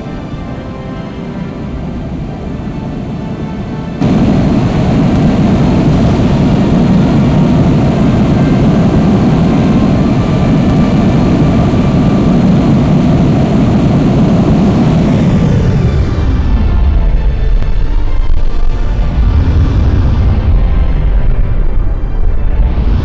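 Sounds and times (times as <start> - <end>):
jet engines roaring: 4.0 - 18.4.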